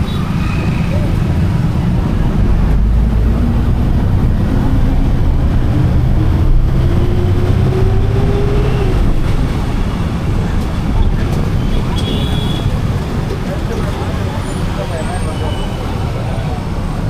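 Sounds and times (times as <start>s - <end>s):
vehicle rumble in motion: 0.0s - 17.0s.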